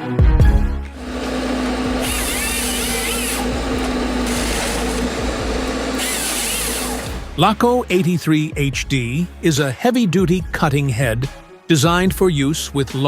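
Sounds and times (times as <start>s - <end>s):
machine hum: 1.0s - 7.3s.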